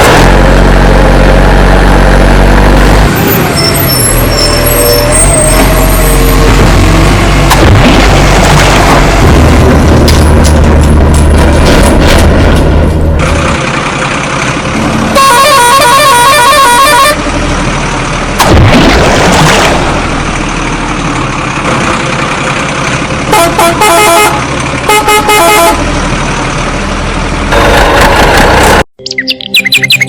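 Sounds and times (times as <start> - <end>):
engine noise: 0.0 - 28.9
vehicle horn honking: 15.2 - 17.2, 23.3 - 25.8.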